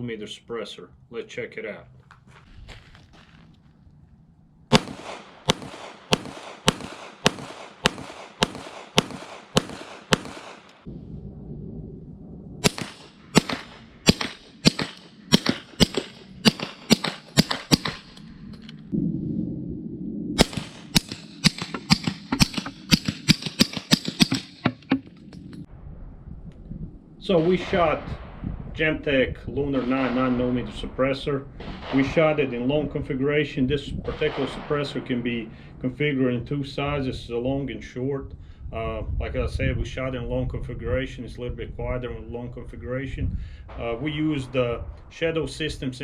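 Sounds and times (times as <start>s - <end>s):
pistol shots: 4.7s - 10.9s, 12.6s - 18.4s, 20.4s - 25.0s, 29.7s - 30.9s, 31.5s - 32.8s, 34.0s - 35.4s
suppressed pistol shots: 4.7s - 10.9s, 12.6s - 18.8s, 20.4s - 25.4s, 29.8s - 30.7s, 31.6s - 32.6s.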